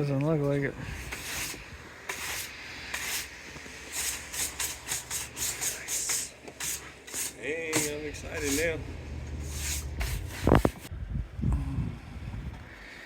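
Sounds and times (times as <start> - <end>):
hissing rub strokes: 0.8 - 10.9
faint low hum: 8.0 - 12.6.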